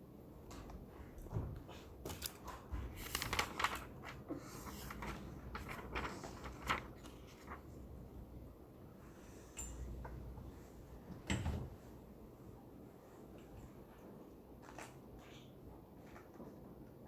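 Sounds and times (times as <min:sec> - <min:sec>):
low room hum: 0:00.0 - 0:17.0
small clicks and rustles: 0:02.0 - 0:07.7.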